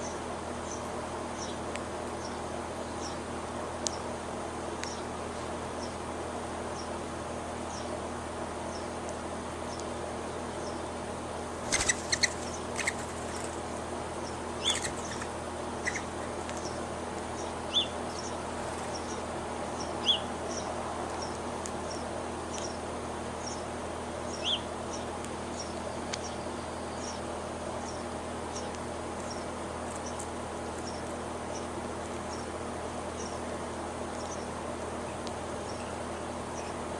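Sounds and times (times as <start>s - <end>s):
small birds chirping: 0.0s - 4.2s, 4.8s - 8.0s, 8.6s - 9.0s, 9.6s - 36.9s
insects hissing: 14.2s - 16.3s.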